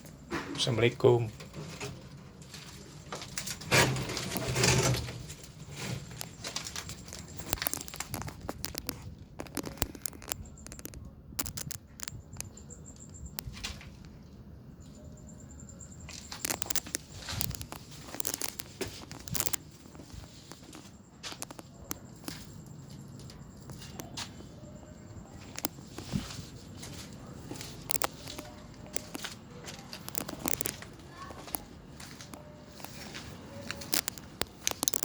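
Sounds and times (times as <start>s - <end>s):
rustling and crackling: 0.0s - 12.6s, 16.0s - 24.5s, 25.2s - 35.0s
sharp clicks: 6.2s - 13.5s, 16.1s - 20.3s, 30.0s - 31.6s, 33.6s - 35.0s.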